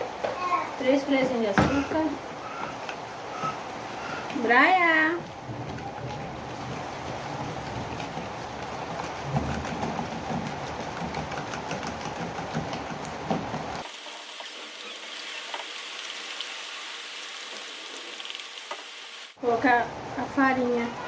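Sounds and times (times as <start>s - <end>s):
rain falling: 0.0s - 20.4s
patters of raindrops: 0.1s - 19.4s.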